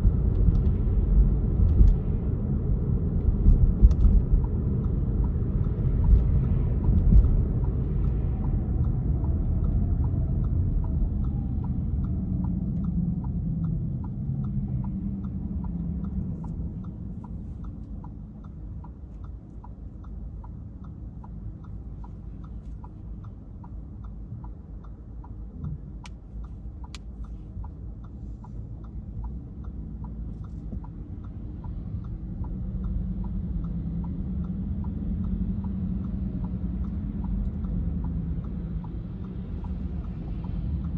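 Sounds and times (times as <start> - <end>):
car engine and road rumble: 0.0 - 40.9
steady ticking: 0.0 - 40.9.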